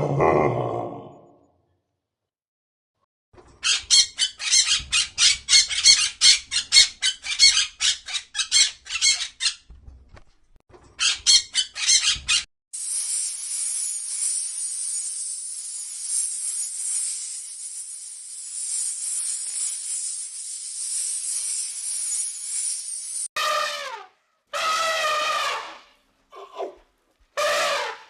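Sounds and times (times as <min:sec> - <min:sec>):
steady high hiss: 0:12.8 - 0:23.3.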